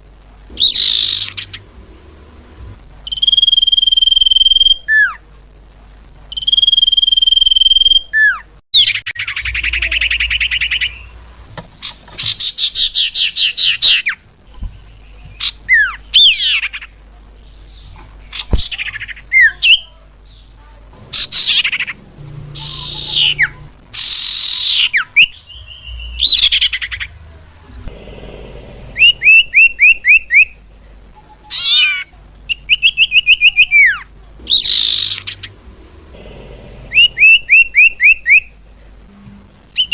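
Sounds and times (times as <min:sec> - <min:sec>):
bird calls and whistles: 0:00.6 - 0:01.6, 0:29.0 - 0:30.5, 0:31.6 - 0:35.5, 0:37.0 - 0:38.5.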